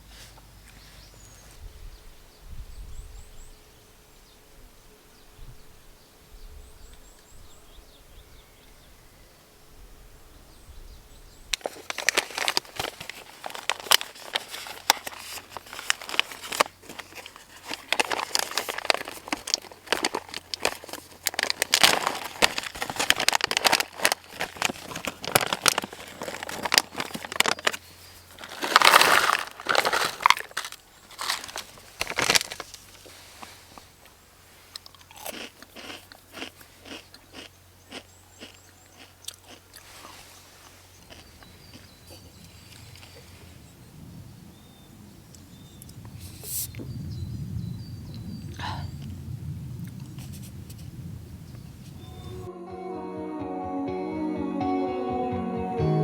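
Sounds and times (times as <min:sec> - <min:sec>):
plastic wrapping crinkling: 0:11.6 - 0:34.0
faint bird chirps: 0:40.8 - 0:49.2.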